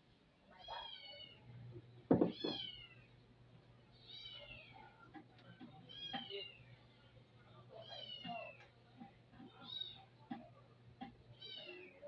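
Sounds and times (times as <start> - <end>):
faint steady hum: 0.0 - 12.0
cat meowing: 11.4 - 12.0.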